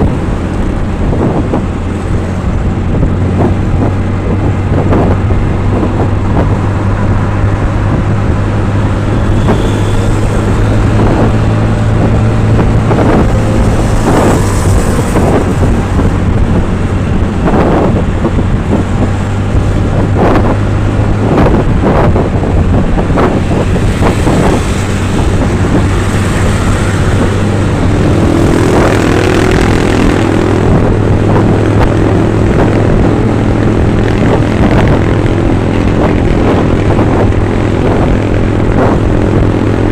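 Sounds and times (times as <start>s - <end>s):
vehicle engine droning: 0.0s - 39.9s
vehicles passing: 0.0s - 39.9s.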